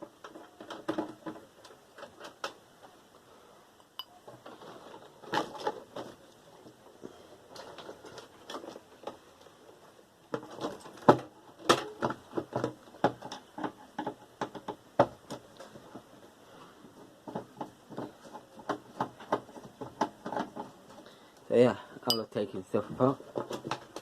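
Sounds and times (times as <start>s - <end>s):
tools and parts clinking: 22.0s - 22.4s.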